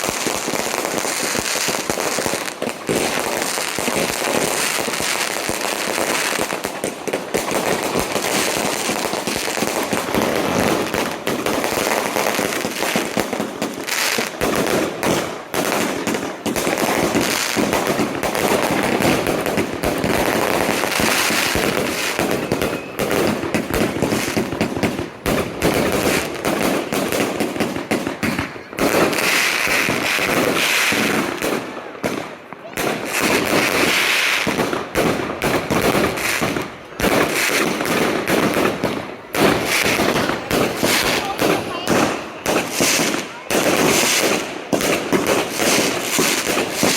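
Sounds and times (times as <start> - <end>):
firecrackers popping: 0.0 - 46.9.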